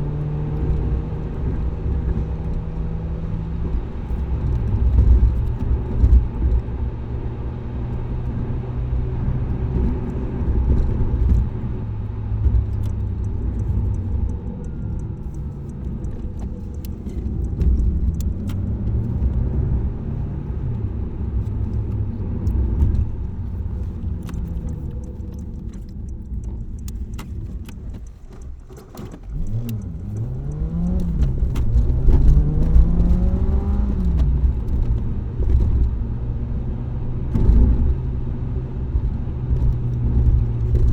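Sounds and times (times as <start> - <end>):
car engine and exhaust rumble: 0.0 - 40.9
light clicks and rattles: 12.3 - 36.0.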